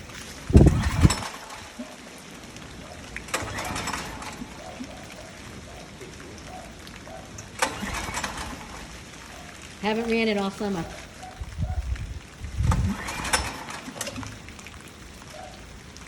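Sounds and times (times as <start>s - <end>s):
generator engine cranking: 0.5s - 2.0s, 3.2s - 5.2s, 7.3s - 10.9s, 12.6s - 14.4s.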